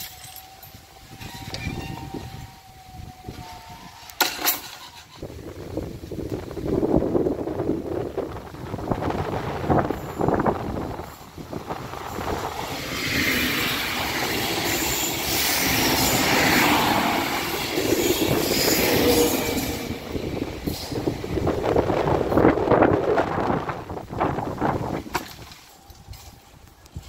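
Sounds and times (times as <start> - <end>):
train passing at speed: 5.4 - 25.1.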